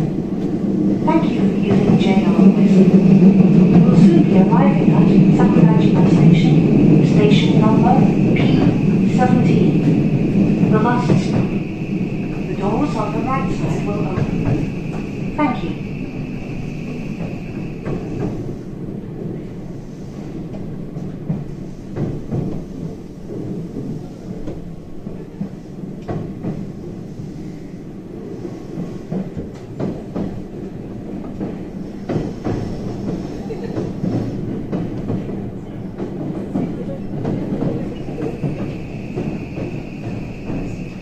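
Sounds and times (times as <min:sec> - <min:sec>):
train rumbling from inside: 0:00.0 - 0:41.0.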